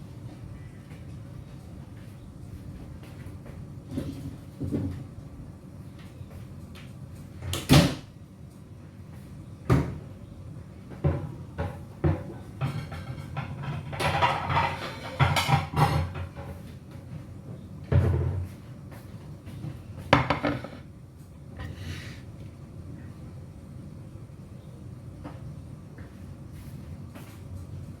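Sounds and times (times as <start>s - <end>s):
cookware clattering: 12.6s - 16.4s, 20.2s - 20.8s
kitchen knocks and bangs: 20.2s - 20.8s.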